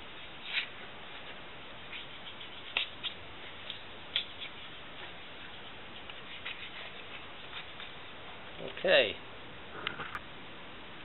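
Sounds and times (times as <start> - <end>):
hands handling materials: 0.1 - 8.8.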